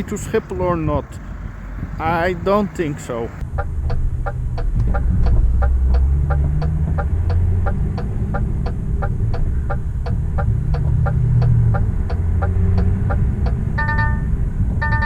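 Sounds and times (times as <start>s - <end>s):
diesel engine idling: 0.0s - 15.0s
hazard light ticking: 3.4s - 15.0s.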